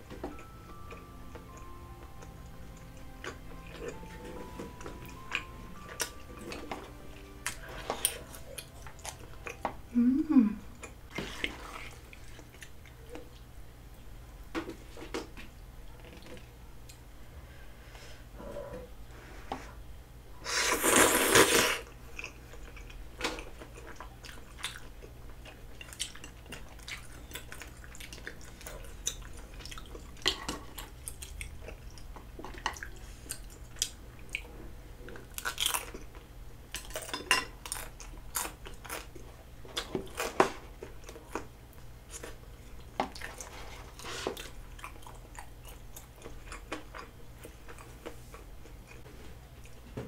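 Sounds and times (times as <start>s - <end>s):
chewing: 1.6s - 9.7s, 10.7s - 13.5s, 21.8s - 49.9s.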